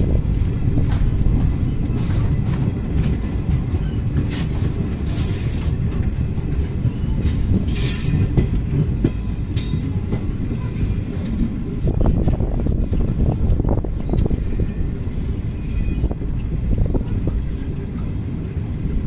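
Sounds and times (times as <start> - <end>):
train rumbling on track: 0.0 - 19.0
faint rail-joint clicks: 0.8 - 13.1
high-pitched wheel squeal: 7.0 - 8.4, 15.4 - 16.8.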